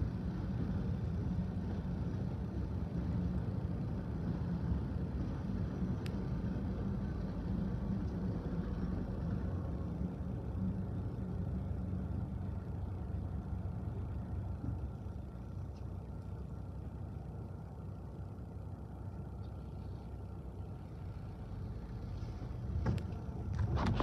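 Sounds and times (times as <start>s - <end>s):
car idling: 0.0s - 24.0s.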